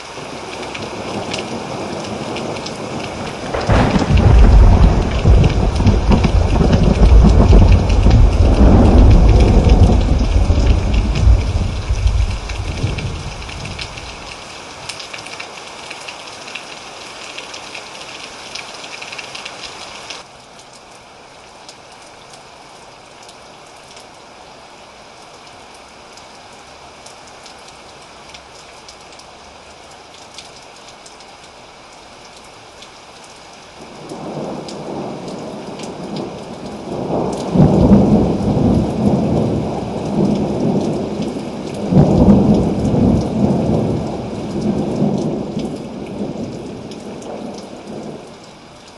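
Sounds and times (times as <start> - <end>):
rain falling: 0.0 - 48.9
thunder rolling: 2.4 - 14.1, 36.8 - 41.0, 41.8 - 46.4.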